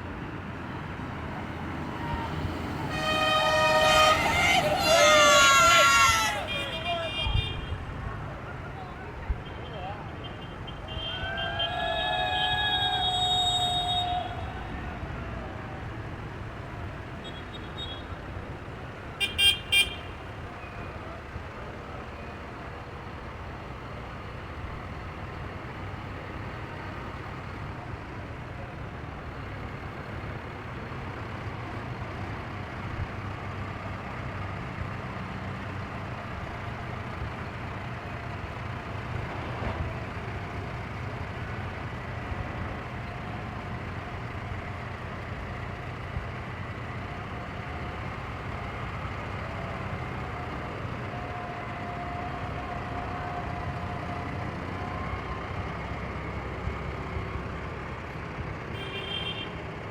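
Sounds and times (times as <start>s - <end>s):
tractor engines running: 0.0s - 59.9s
horn tooting: 2.0s - 7.8s, 9.4s - 14.7s, 58.7s - 59.6s.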